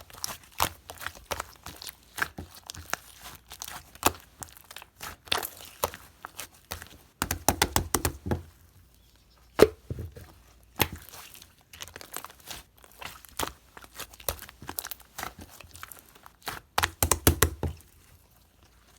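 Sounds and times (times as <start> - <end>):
loud slime pop: 16.9 - 17.7.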